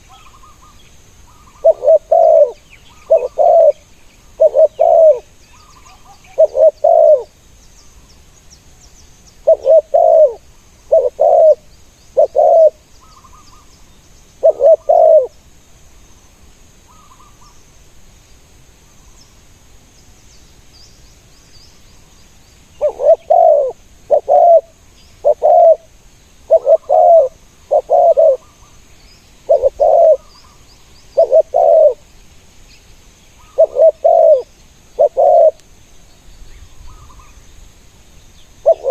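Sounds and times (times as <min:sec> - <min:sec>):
doves cooing: 0:01.3 - 0:03.8, 0:04.4 - 0:05.3, 0:05.9 - 0:07.3, 0:09.4 - 0:13.4, 0:14.4 - 0:15.4, 0:22.8 - 0:25.9, 0:26.5 - 0:28.6, 0:29.5 - 0:30.4, 0:31.2 - 0:32.0, 0:33.4 - 0:35.6, 0:38.6 - 0:38.9.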